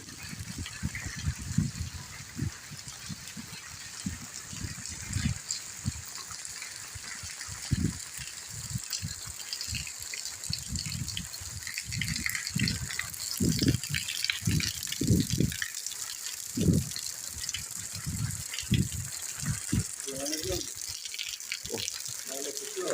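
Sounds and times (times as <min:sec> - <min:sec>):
rain hiss: 0:00.0 - 0:22.9.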